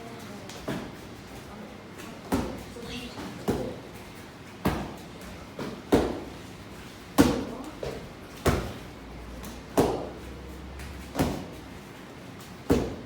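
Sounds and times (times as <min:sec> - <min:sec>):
kicks smacking a kick mitt: 0:12.7 - 0:13.0.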